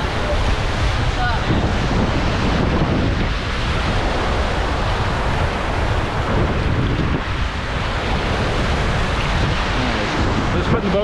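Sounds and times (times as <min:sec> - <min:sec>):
river whitewater rushing: 0:00.0 - 0:11.0
wind buffeting microphone: 0:00.0 - 0:11.0.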